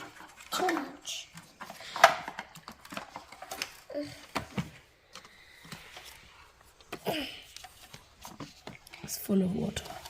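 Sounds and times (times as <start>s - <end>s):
plastic vacuum parts clicking: 0.0s - 6.2s.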